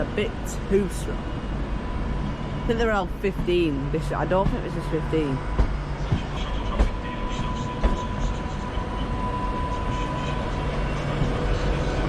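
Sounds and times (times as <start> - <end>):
train rumbling past slowly: 0.0 - 12.0
train wheels knocking: 3.0 - 7.0.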